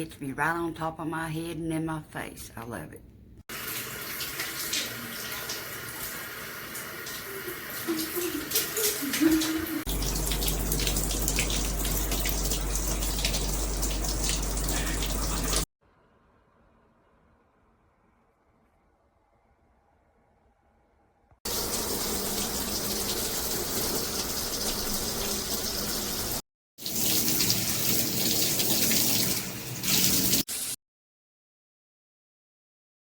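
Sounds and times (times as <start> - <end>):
shower head spraying water: 3.5 - 15.7, 21.5 - 30.8.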